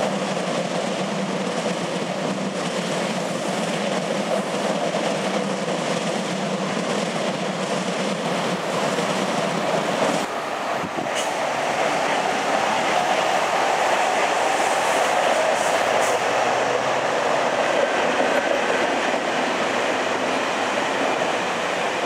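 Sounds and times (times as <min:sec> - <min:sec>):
train wheels on rails: 0:00.0 - 0:22.0.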